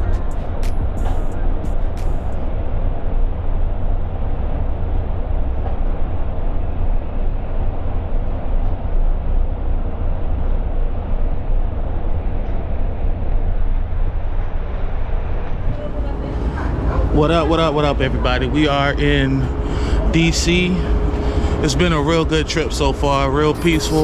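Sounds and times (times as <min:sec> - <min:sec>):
passenger train rumbling: 0:15.5 - 0:24.0.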